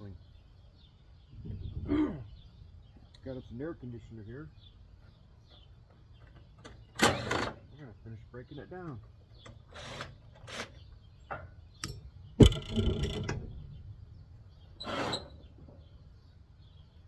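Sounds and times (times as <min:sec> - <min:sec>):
clicks and knocks of hand tools: 0:11.3 - 0:13.4
metal scrape: 0:14.8 - 0:15.5.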